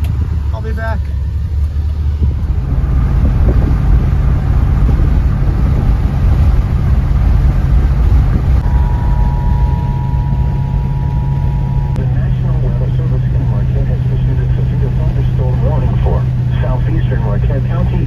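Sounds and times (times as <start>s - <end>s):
car engine humming: 0.0s - 18.0s
steady high tone: 8.6s - 16.8s.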